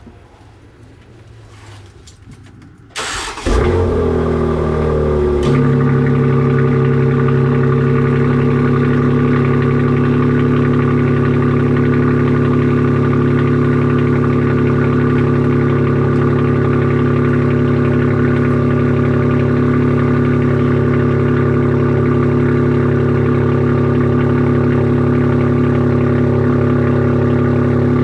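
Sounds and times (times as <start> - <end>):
car engine cranking and starting: 0.0 - 28.0
car engine idling: 2.9 - 28.0.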